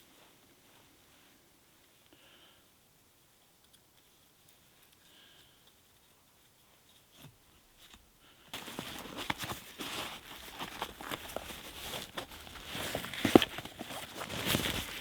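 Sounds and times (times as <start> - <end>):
crunching and rustling: 8.6 - 15.0.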